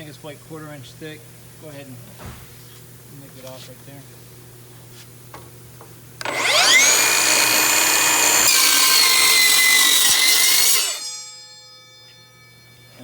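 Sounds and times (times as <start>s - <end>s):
circular saw cutting steel: 6.2s - 12.8s.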